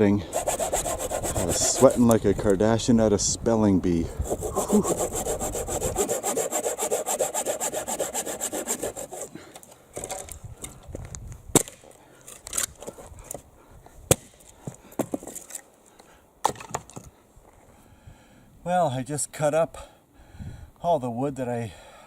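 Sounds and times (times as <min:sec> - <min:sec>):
hand saw cutting wood: 0:00.3 - 0:02.2, 0:04.2 - 0:09.5.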